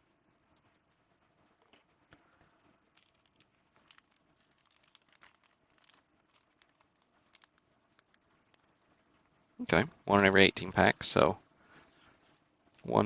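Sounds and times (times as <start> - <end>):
cards and wrappers rustling: 2.8 - 8.7.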